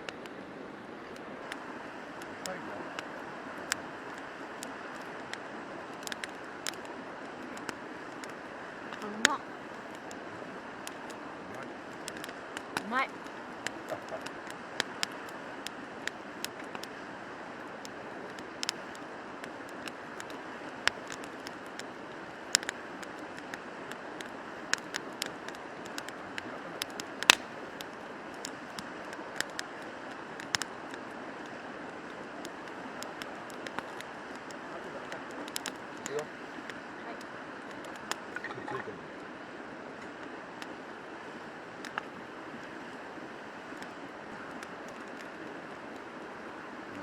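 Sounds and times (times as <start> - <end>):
sharp clicks and taps: 6.0 - 6.9.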